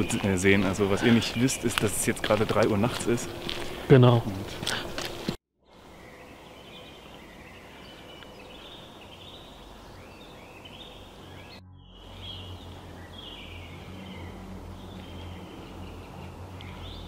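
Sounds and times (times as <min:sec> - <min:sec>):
birds chirping and trilling: 0:00.0 - 0:04.2, 0:05.6 - 0:17.0
low hum: 0:03.1 - 0:17.0.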